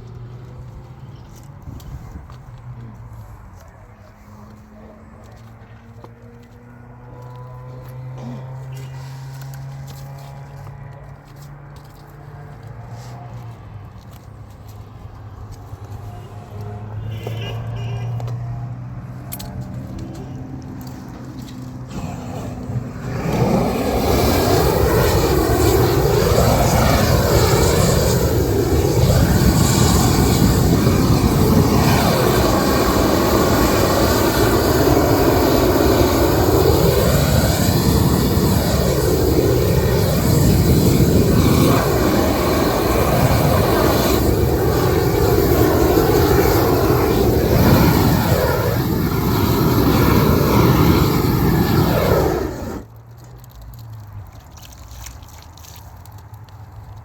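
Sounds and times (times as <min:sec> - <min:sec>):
blowtorch roaring: 0:07.2 - 0:09.7, 0:20.6 - 0:52.9.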